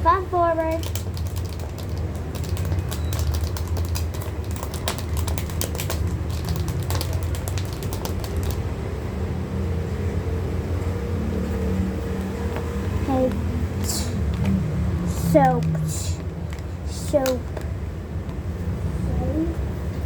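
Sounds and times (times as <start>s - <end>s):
plastic case clicking and tapping: 0.8s - 8.6s.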